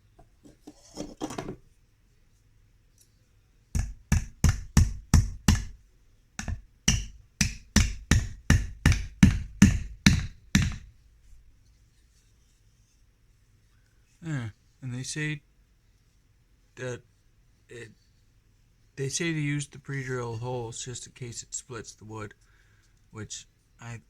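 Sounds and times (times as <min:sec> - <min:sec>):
hammer striking nail into wood: 0:03.8 - 0:05.8, 0:06.4 - 0:10.9.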